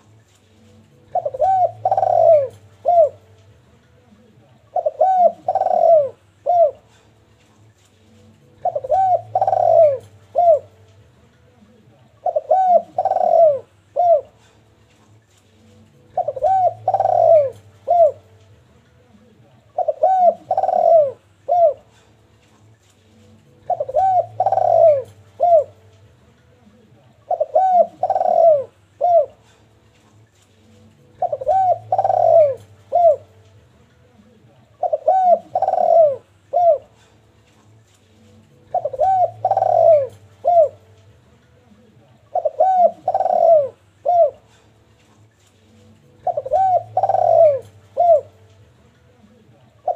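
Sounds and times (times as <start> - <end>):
dove cooing: 0.7 - 7.2, 8.4 - 10.9, 11.6 - 14.8, 16.0 - 18.4, 19.2 - 22.2, 23.5 - 25.9, 26.7 - 29.7, 30.9 - 33.4, 34.1 - 37.4, 38.3 - 44.8, 45.8 - 48.6, 49.2 - 49.9.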